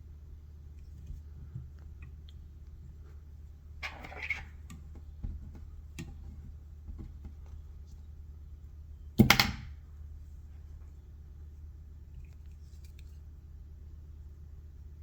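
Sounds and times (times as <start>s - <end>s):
small handling clicks and rustles: 12.1s - 13.4s.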